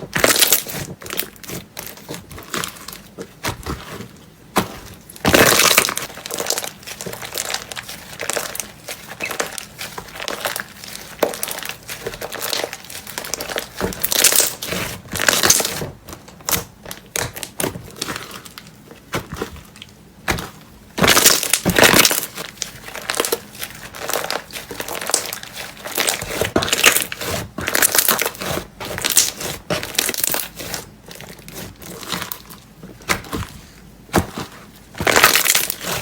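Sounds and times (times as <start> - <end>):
slime squeezed crackling: 5.0 - 15.8, 21.0 - 33.2, 35.0 - 36.0.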